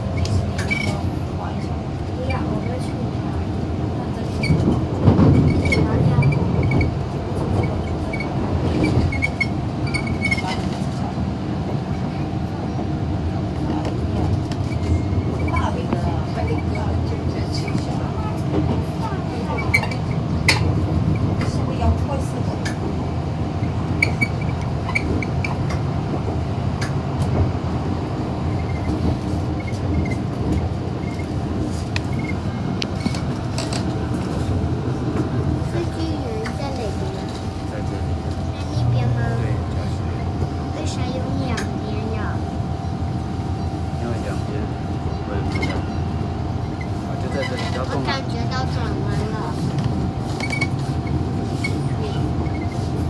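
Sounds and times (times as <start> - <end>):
train rumble: 0.0 - 53.0.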